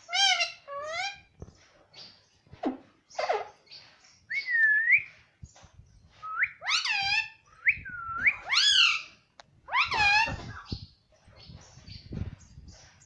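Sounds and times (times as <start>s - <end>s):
parrot whistled calls: 6.3s - 9.1s.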